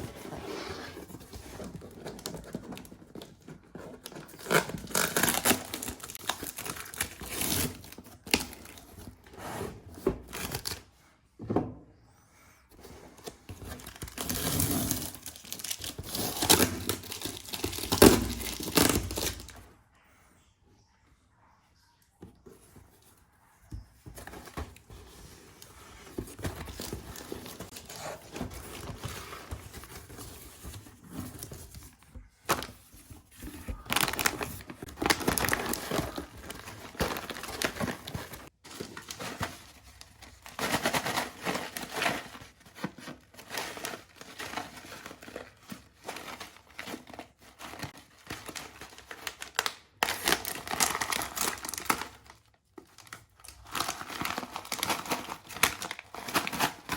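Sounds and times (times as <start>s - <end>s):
plastic packets crinkling: 4.0s - 8.9s, 32.6s - 56.9s.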